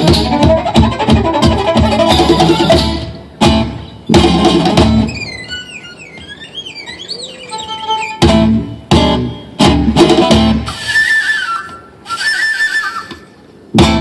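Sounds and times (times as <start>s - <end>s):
guitar chords ringing: 0.0s - 10.7s, 13.8s - 14.0s.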